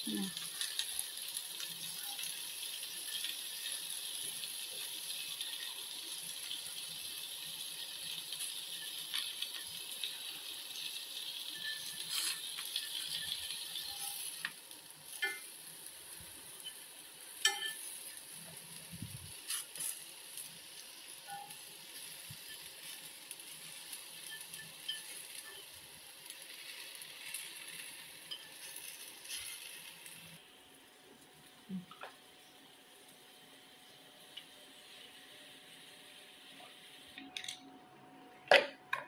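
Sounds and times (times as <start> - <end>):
squash sizzling in a skillet: 0.0 - 37.0
tongs clicking against pan: 11.6 - 15.6, 17.4 - 17.9.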